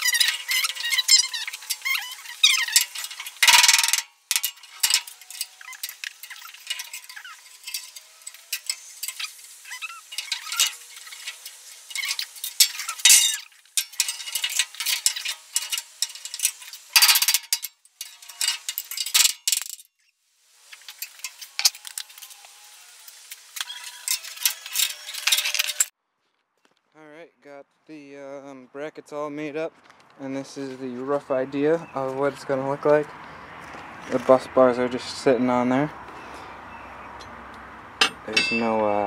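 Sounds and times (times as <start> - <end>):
metal bracket pieces clinking: 0.0 - 19.9, 23.6 - 25.9, 38.0 - 39.0.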